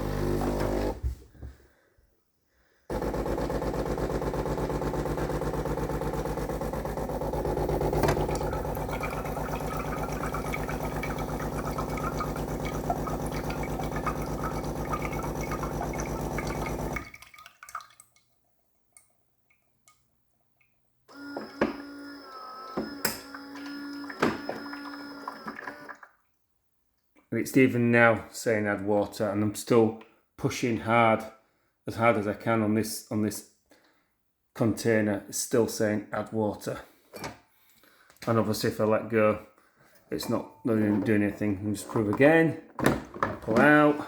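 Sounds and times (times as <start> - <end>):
water pump buzzing: 0.0 - 1.0, 2.9 - 17.3, 21.1 - 26.0.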